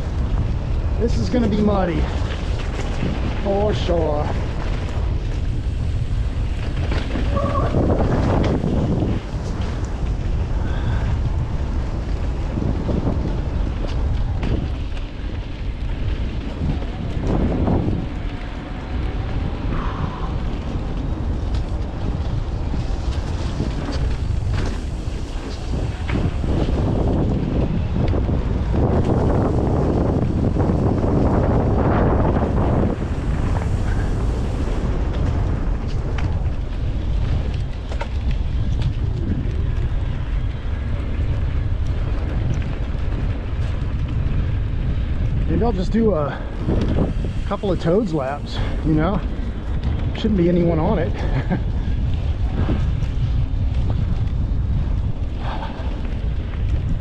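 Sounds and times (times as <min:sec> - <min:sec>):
tyre noise: 0:00.0 - 0:57.0
wind on camera microphone: 0:00.0 - 0:57.0
bike clicks and knocks: 0:02.0 - 0:33.8, 0:35.0 - 0:45.4.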